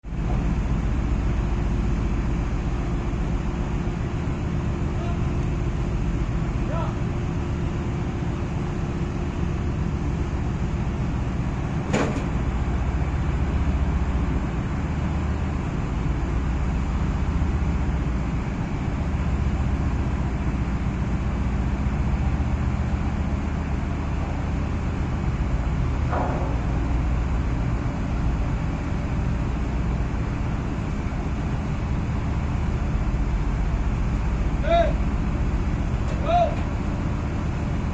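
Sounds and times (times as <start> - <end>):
diesel engine droning: 0.0 - 37.9
sharp knock: 26.1 - 27.0.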